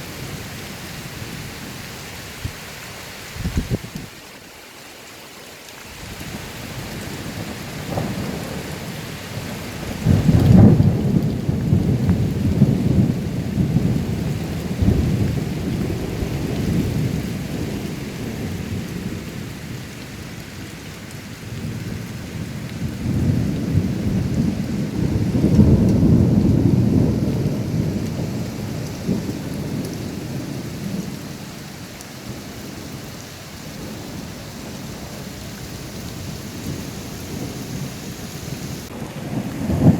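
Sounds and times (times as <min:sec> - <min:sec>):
steady rain: 0:00.0 - 0:39.9
thunder rumbling: 0:07.0 - 0:19.8, 0:21.5 - 0:39.9.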